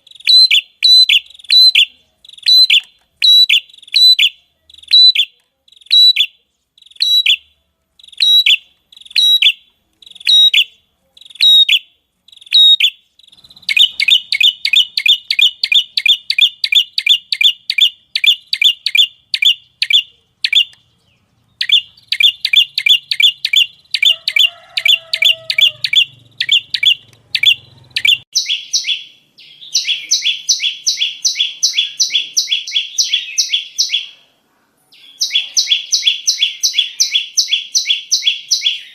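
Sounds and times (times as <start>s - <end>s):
bird chirping song: 0.0s - 34.3s, 34.9s - 38.9s.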